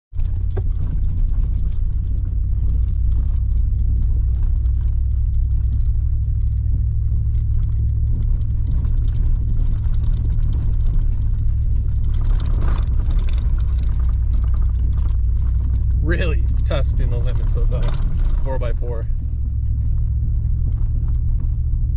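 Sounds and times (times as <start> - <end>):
truck engine rumbling: 0.1 - 21.9.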